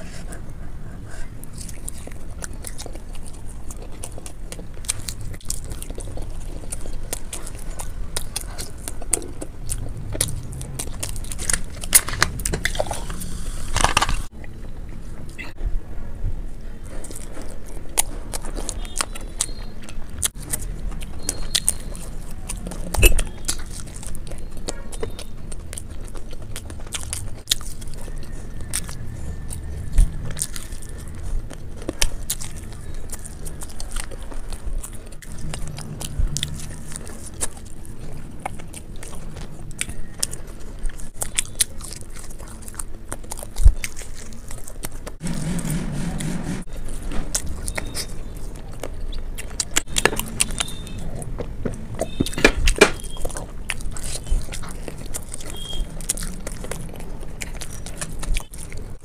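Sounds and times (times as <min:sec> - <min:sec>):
person chewing: 0:00.0 - 0:15.6, 0:16.6 - 0:59.0.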